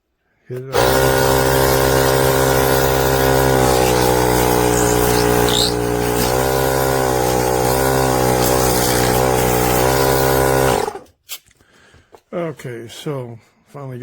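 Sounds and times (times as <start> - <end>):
small air compressor running: 0.7 - 11.1.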